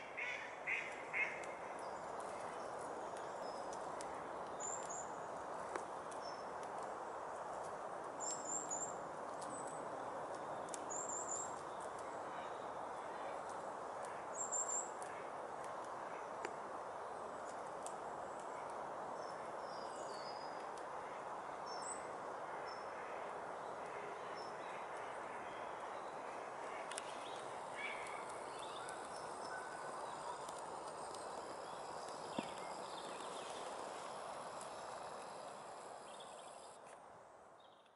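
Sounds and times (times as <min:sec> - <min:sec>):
outdoor background hiss: 0:00.0 - 0:37.9
small birds chirping: 0:25.6 - 0:36.8.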